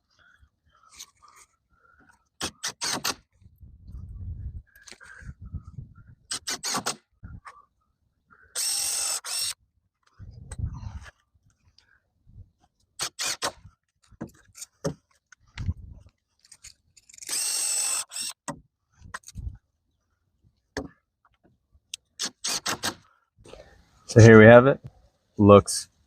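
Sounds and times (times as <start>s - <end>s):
cordless drill running: 8.6s - 9.6s, 17.2s - 18.4s.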